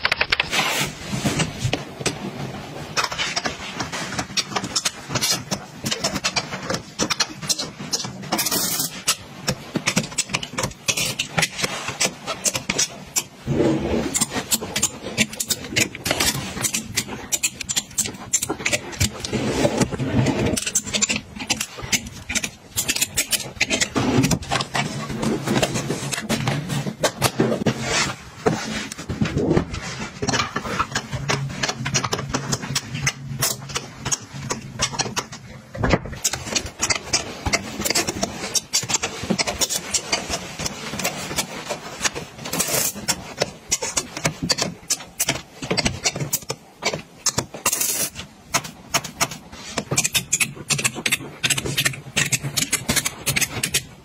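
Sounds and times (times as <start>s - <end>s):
household items clicking and knocking: 0.0s - 54.0s.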